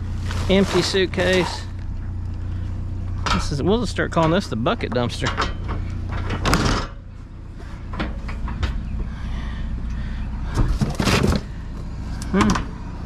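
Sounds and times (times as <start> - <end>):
vehicle engine idling: 0.0 - 13.0
plastic buckets clattering: 10.5 - 11.5.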